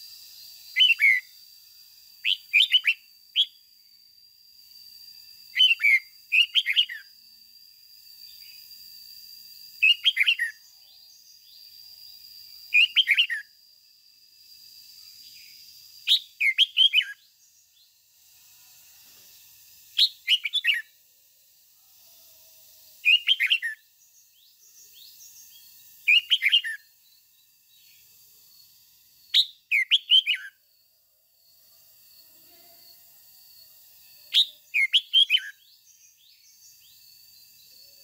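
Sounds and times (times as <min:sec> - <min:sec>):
faint steady high tone: 0:14.2 - 0:38.0
bird warbling song: 0:20.0 - 0:20.9, 0:24.4 - 0:26.8, 0:29.3 - 0:30.5, 0:34.3 - 0:36.6.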